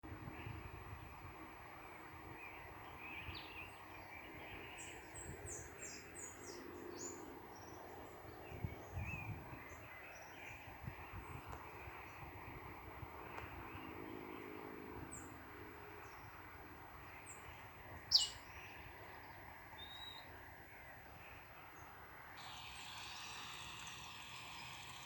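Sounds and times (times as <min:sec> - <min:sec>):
birds chirping: 0:01.9 - 0:25.0
river background hiss: 0:15.1 - 0:25.0.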